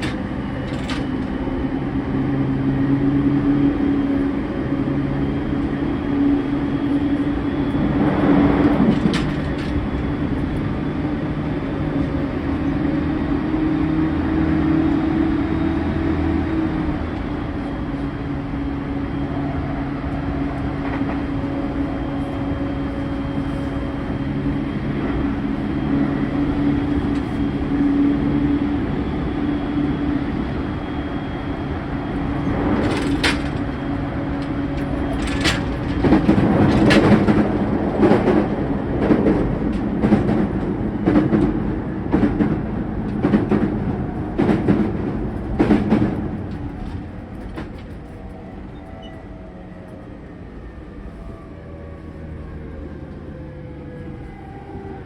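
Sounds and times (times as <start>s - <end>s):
wheel-on-rail rumble: 0.0s - 55.0s
wheels knocking on rail joints: 32.4s - 47.8s.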